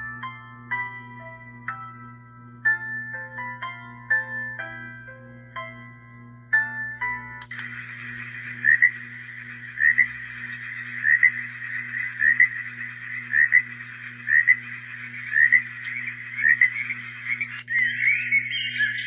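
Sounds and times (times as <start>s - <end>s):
frog calling through speaker: 8.3s - 19.0s.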